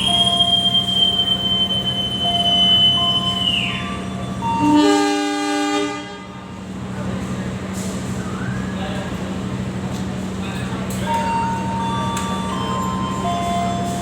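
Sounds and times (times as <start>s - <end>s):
locomotive rumbling: 0.0s - 14.0s
train horn blast: 4.4s - 6.5s.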